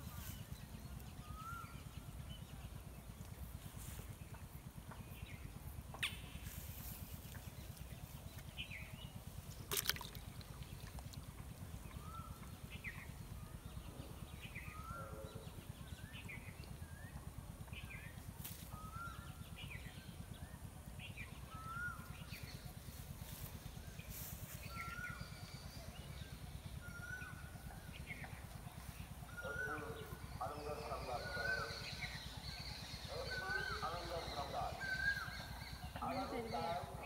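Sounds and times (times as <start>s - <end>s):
steady low rumble: 0.0s - 33.3s.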